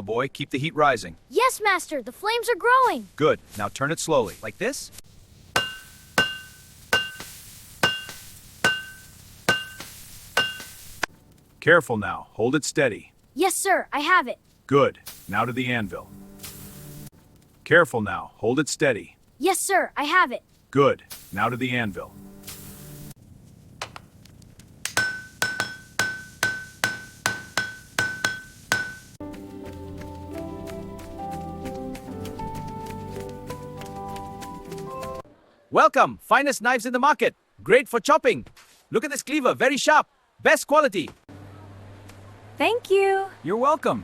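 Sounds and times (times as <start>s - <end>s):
hammer striking metal: 5.6s - 11.0s, 24.9s - 29.2s.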